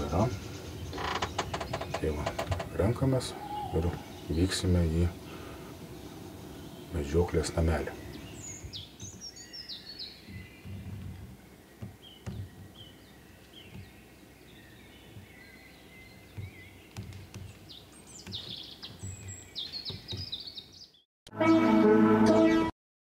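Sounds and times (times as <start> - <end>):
faint background noise: 0.0 - 20.6
birds chirping and trilling: 0.0 - 21.1
soft low thumps: 10.2 - 20.6.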